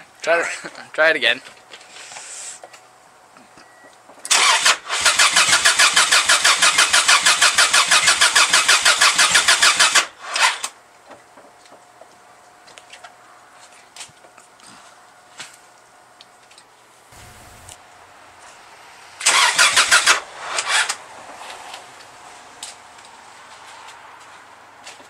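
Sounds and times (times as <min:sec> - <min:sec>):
engine cranking with starter: 0:04.2 - 0:10.8, 0:19.2 - 0:21.0.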